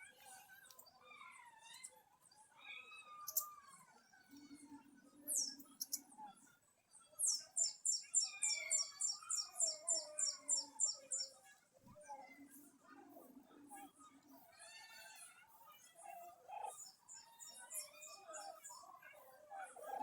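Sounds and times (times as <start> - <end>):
wild birds chirping: 0.7 - 6.2, 6.9 - 11.5, 16.5 - 20.0.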